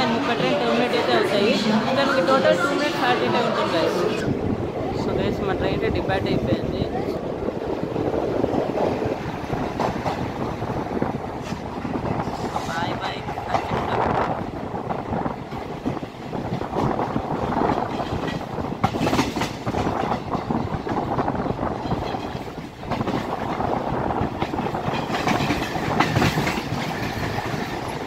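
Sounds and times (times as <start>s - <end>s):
train wheels clattering over rails: 6.4s - 28.0s.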